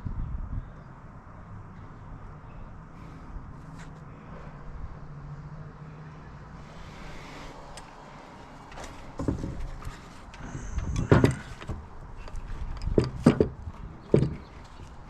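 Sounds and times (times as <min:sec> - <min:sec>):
engine parts knocking and clunking: 0:07.8 - 0:15.0.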